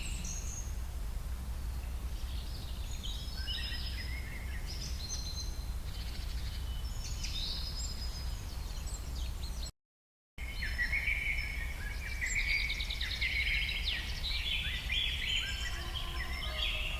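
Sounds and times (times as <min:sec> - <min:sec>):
birds chirping and calling: 0:00.0 - 0:00.7, 0:10.4 - 0:16.9.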